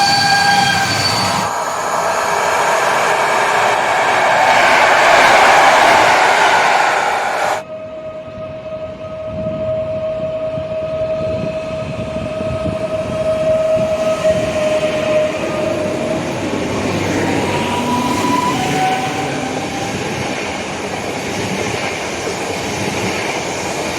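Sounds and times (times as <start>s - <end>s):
steady high-pitched tone: 0.0s - 9.0s
train rumbling: 0.0s - 23.9s
loud noisy burst: 0.7s - 7.6s.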